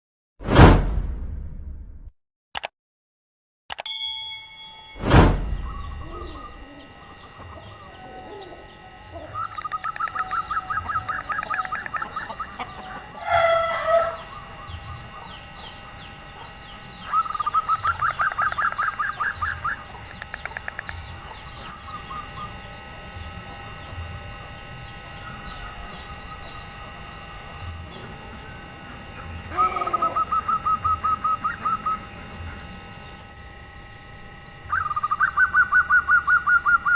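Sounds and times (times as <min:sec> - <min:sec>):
loud whoosh-like hit: 0:00.4 - 0:02.1, 0:05.0 - 0:05.9
dove calling: 0:05.4 - 0:36.9
rooster crowing: 0:05.7 - 0:09.5, 0:10.1 - 0:15.2, 0:29.5 - 0:30.5.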